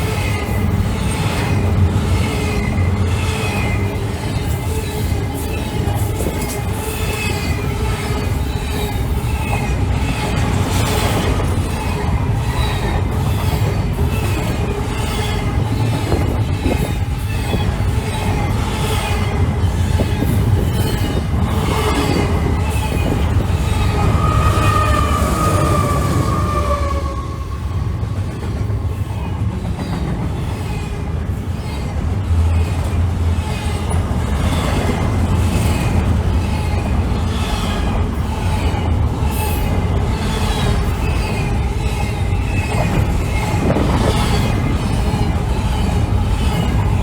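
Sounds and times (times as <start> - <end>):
rumble of train wheels on rail: 0.0 - 47.0
high wheel squeals: 20.4 - 28.1.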